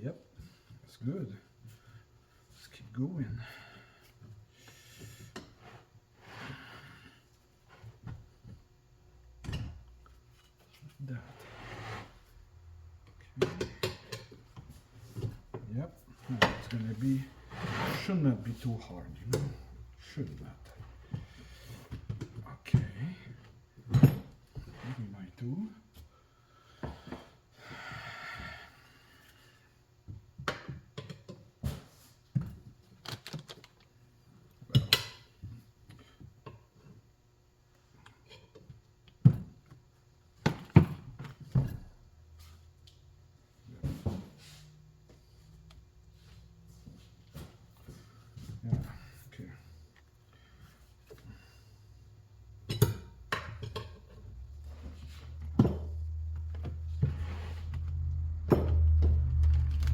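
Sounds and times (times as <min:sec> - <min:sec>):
low hum: 0:53.2 - 0:59.9.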